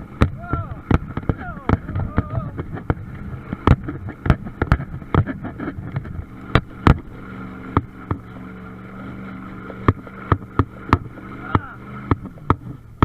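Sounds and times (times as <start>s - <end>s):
truck engine droning: 0.0s - 13.0s
sharp knocks and clatters: 0.2s - 7.1s.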